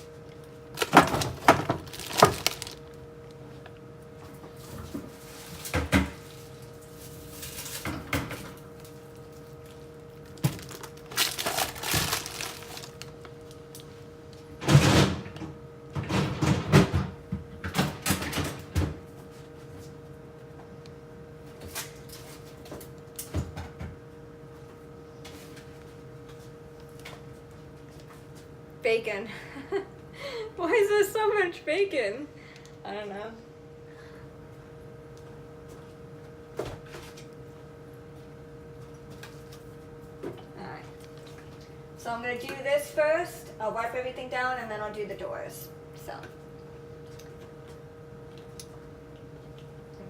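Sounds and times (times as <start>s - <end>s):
refrigerator hum: 0.0s - 50.0s
packages rustling: 0.7s - 3.0s, 10.3s - 13.5s.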